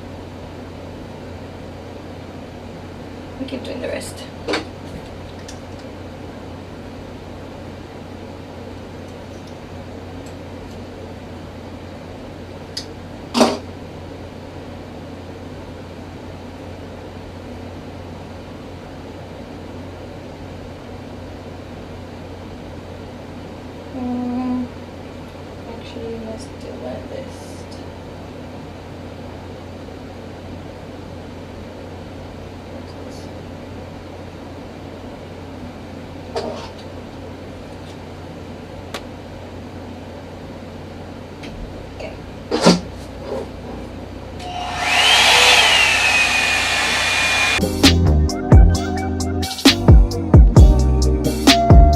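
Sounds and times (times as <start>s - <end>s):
hair dryer brush running: 44.4s - 47.6s.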